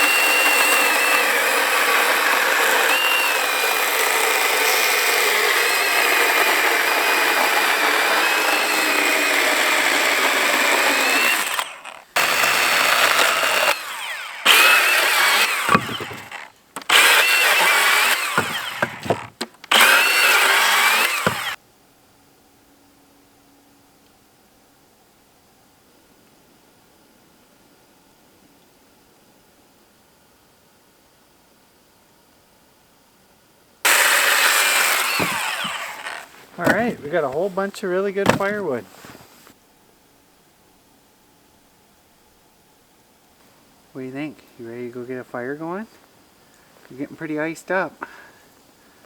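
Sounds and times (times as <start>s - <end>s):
battery chainsaw cutting wood: 0.0s - 21.6s, 33.9s - 39.0s.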